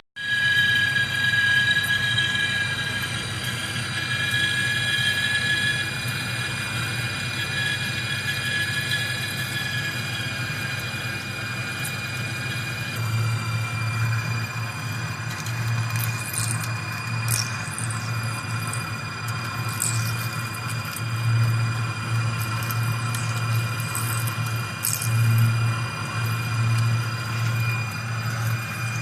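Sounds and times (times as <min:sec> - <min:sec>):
metal lathe whining: 0:00.2 - 0:29.0.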